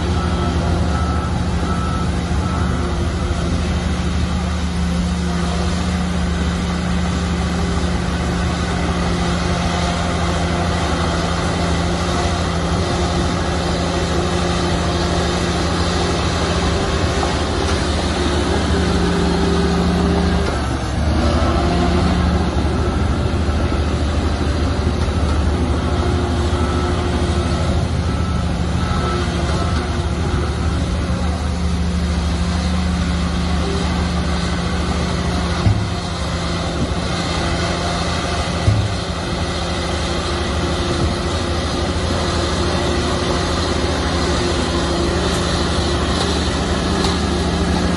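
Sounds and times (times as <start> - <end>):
diesel construction machinery running: 0.0 - 47.9.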